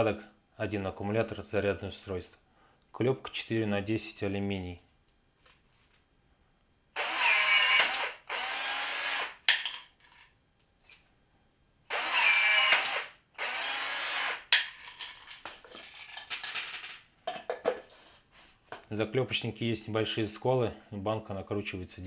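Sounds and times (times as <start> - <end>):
rivet tool motor whining: 7.0 - 9.4, 11.9 - 14.5.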